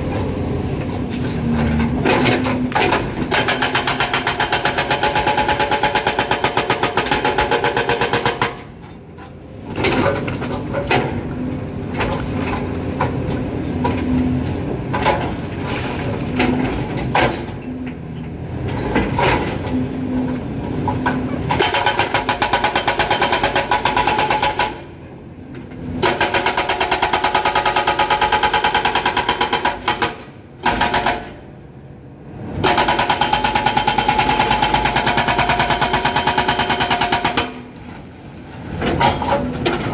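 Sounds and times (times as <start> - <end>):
excavator engine running: 0.0 - 39.9
hydraulic breaker hammering rock: 2.0 - 8.7, 21.1 - 24.9, 26.0 - 31.4, 32.6 - 37.7.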